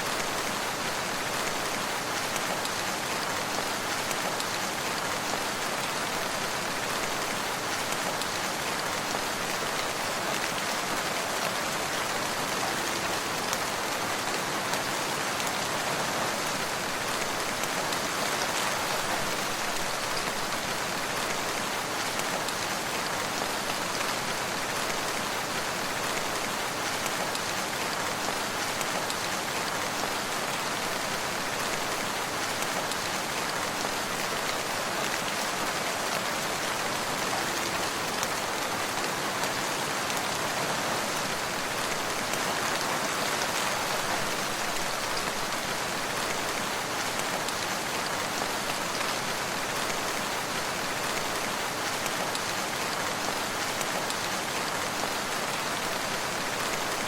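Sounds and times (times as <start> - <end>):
steady rain patter: 0.0 - 57.0.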